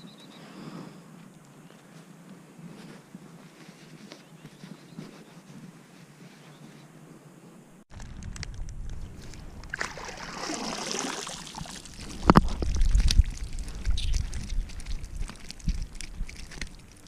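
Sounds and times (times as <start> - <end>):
low rumbling: 7.9 - 17.0
water sloshing and splashing: 9.2 - 17.0.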